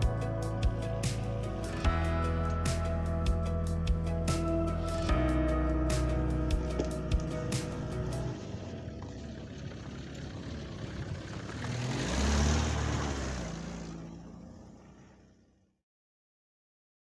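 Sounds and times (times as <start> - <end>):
vehicle driving past: 5.1 - 15.6.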